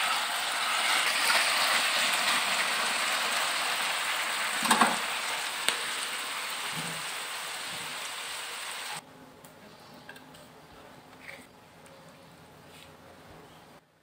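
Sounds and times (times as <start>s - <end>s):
stir-fry sizzling: 0.0s - 9.0s.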